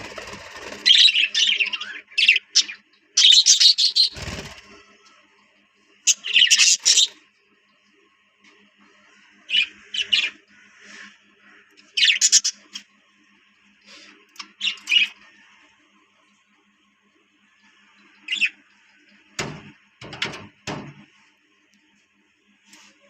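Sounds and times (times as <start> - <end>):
background bird chatter: 0.0 - 23.0.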